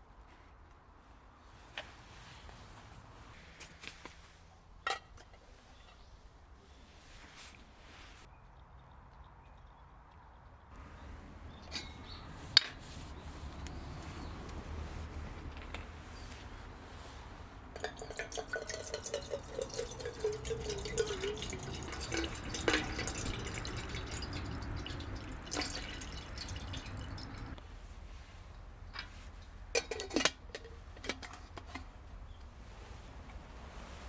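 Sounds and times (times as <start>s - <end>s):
water pouring into container: 17.8s - 27.6s.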